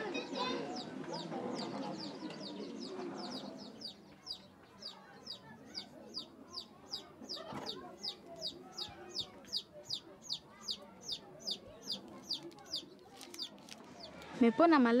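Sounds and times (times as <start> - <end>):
low background murmur: 0.0 - 15.0
bird chirping: 0.7 - 14.2.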